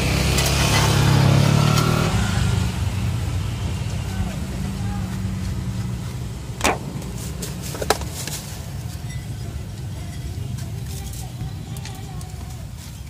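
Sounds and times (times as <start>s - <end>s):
road traffic rumble: 0.0s - 13.0s
sharp knocks: 6.6s - 8.0s.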